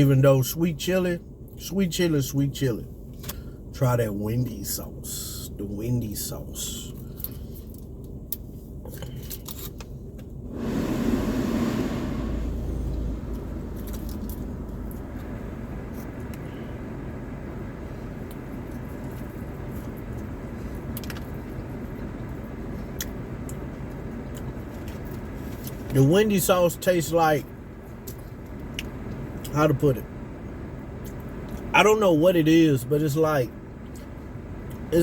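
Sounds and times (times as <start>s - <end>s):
low rumble: 10.4s - 18.3s.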